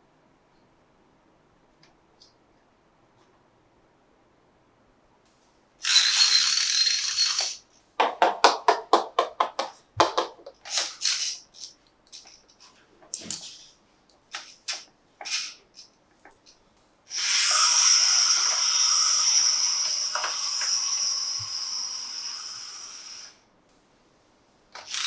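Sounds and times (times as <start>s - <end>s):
plastic toy clicks and rattles: 5.8s - 7.6s, 10.0s - 12.6s, 24.8s - 25.0s.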